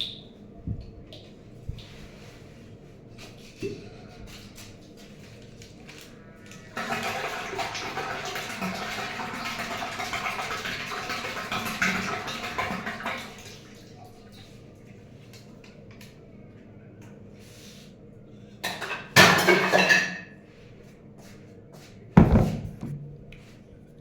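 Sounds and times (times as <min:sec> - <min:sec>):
water rushing out of a pipe: 0:06.7 - 0:13.5.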